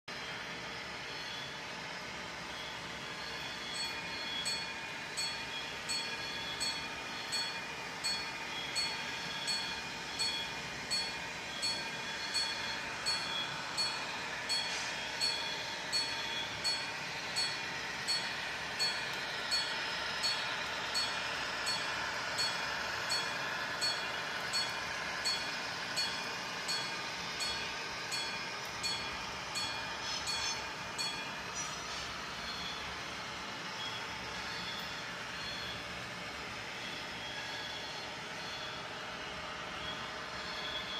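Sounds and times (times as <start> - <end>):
model train running: 0.1 - 40.9
level-crossing bell ringing: 3.2 - 31.4.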